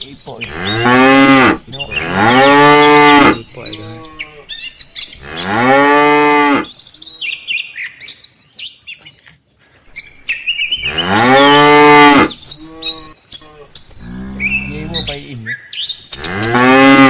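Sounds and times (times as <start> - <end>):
birds chirping faintly: 0.0 - 17.0
cattle mooing: 0.4 - 4.5, 5.2 - 6.7, 10.8 - 15.4, 16.1 - 17.0.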